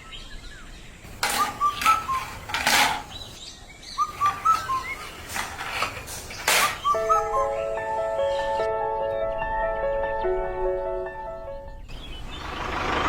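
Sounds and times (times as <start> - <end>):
small birds chirping: 0.0 - 13.0
rustling: 1.1 - 3.4, 4.1 - 7.2.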